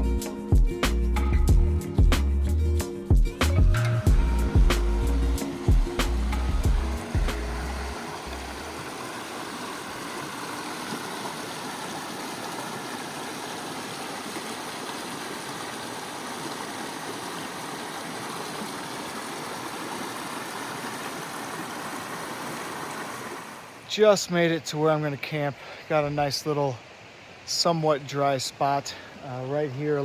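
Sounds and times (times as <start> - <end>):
background music: 0.0 - 8.7
creek water rushing: 3.0 - 30.0.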